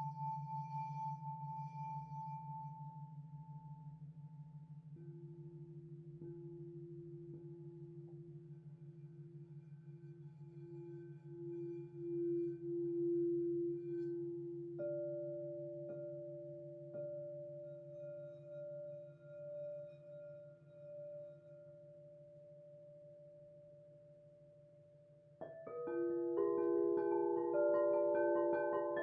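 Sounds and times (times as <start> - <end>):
singing bowl ringing: 25.5 - 29.0.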